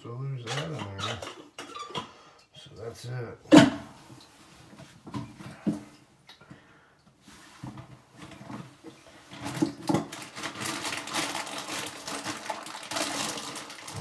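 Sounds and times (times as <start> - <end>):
plastic and metal parts rattling: 9.3 - 14.0.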